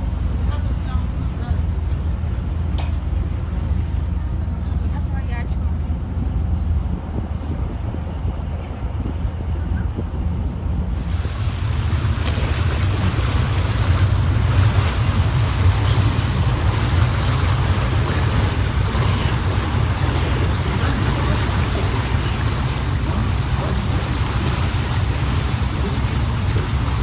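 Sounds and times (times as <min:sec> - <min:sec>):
boat engine rumble: 0:00.0 - 0:27.0
water rushing along hull: 0:00.0 - 0:27.0
wind: 0:00.0 - 0:27.0.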